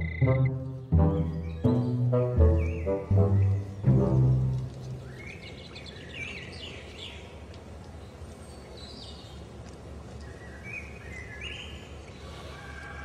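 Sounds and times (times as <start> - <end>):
small birds chirping: 0.0 - 12.4.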